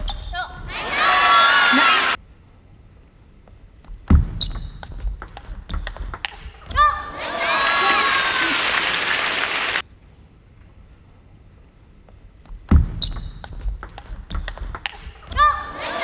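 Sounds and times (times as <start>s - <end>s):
crowd cheering: 0.3s - 2.2s, 6.2s - 9.8s, 14.8s - 16.0s
table tennis ball clicks: 4.4s - 6.8s, 13.0s - 15.4s.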